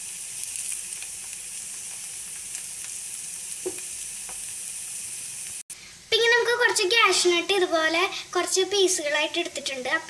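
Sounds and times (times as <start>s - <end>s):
banana slices sizzling in butter: 0.0s - 10.0s.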